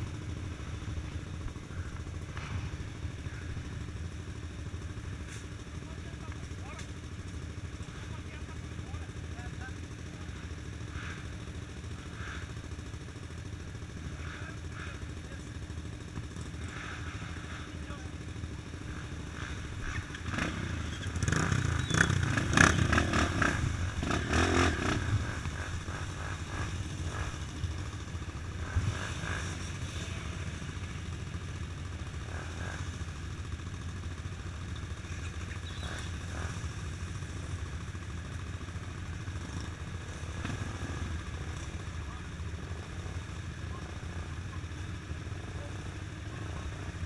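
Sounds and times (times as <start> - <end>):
vehicle engine rumbling: 0.0 - 47.0.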